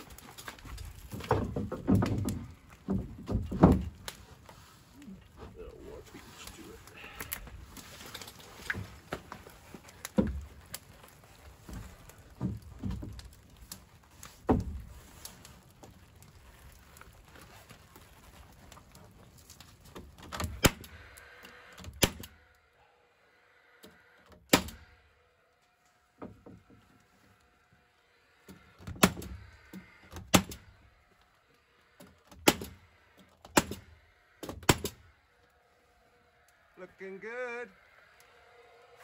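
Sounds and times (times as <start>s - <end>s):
wooden boards knocking: 1.1s - 4.0s
nail gun shots: 20.6s - 20.9s, 22.0s - 22.3s, 24.5s - 24.8s, 30.3s - 30.6s, 32.4s - 32.8s, 33.5s - 33.8s.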